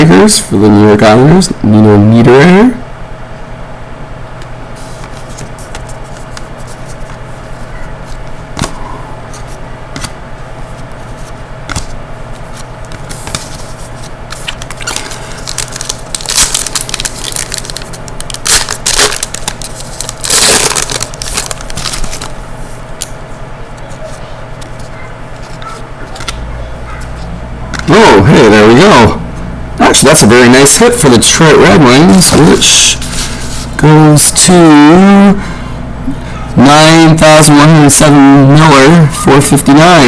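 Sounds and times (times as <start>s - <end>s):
steady low hum: 0.0s - 40.0s
paper rustling: 4.8s - 22.8s, 23.8s - 26.5s, 32.3s - 33.8s
wrapper crinkling: 13.1s - 22.5s.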